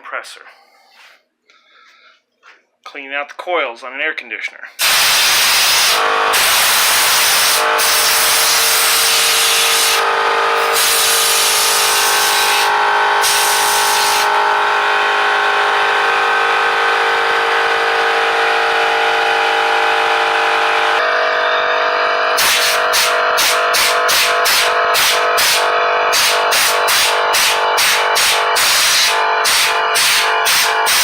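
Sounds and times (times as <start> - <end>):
compressed air hissing: 4.8 - 10.0, 10.6 - 14.3, 22.4 - 31.0
air compressor droning: 4.8 - 31.0.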